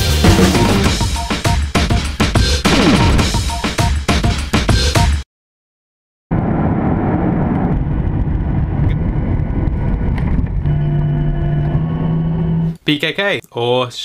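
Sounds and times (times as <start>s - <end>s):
vehicle rumble: 6.3s - 12.8s
steady low hum: 6.4s - 12.8s.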